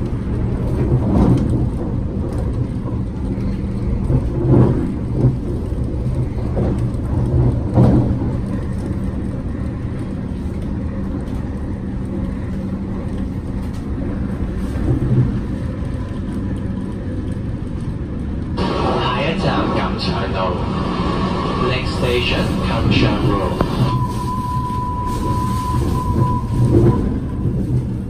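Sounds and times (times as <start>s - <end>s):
train bumps: 0.0s - 11.4s, 21.0s - 28.0s
train rumbling on track: 0.0s - 28.0s
steady hum: 18.6s - 25.8s.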